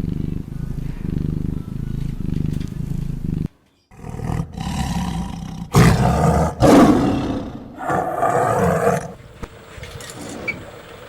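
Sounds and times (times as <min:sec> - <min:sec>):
big cat roaring: 0:03.9 - 0:09.2.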